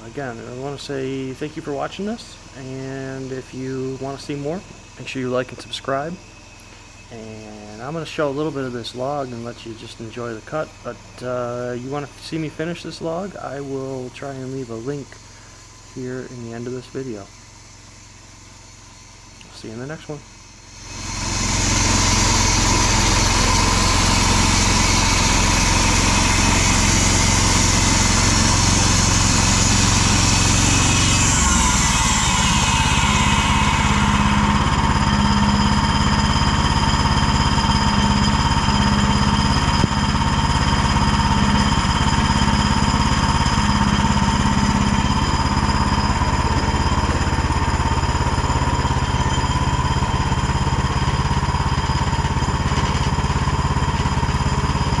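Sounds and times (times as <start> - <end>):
sawmill engine running: 0.0 - 55.0
saw blade cutting log: 20.7 - 55.0.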